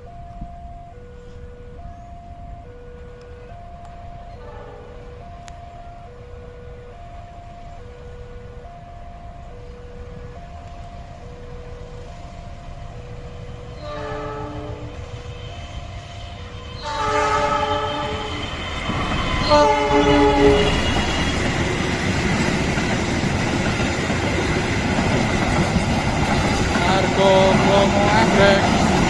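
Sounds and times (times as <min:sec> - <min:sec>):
two-tone crossing warning signal: 0:00.0 - 0:29.0
locomotive chime horn: 0:03.4 - 0:06.2, 0:12.0 - 0:22.1, 0:26.7 - 0:29.0
train rumbling and clattering past: 0:06.9 - 0:29.0.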